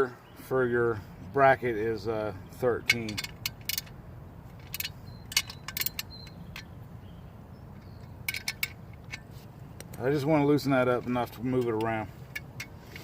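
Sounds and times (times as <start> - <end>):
wrench clicking on metal bolt: 2.8 - 4.0, 4.6 - 6.7, 7.7 - 13.0.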